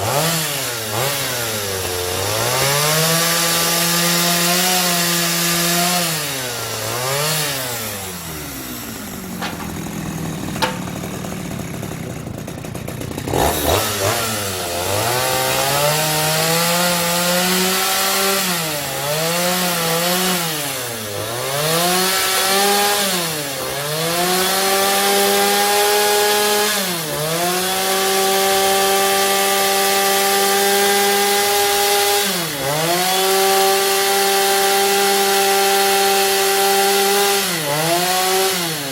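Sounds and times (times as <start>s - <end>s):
power tool cutting wood: 0.0s - 38.9s
short knock: 9.3s - 11.6s.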